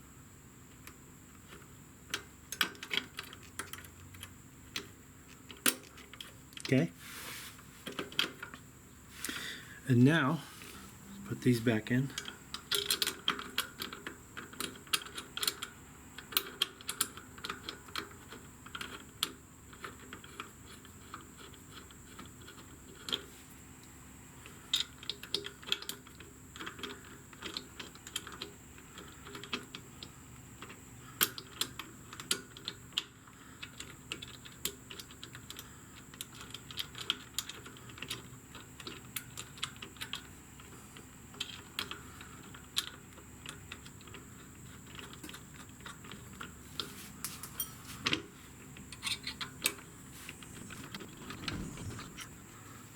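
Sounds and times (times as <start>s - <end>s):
metallic clicks of hand tools: 12.2s - 20.2s, 48.9s - 49.8s.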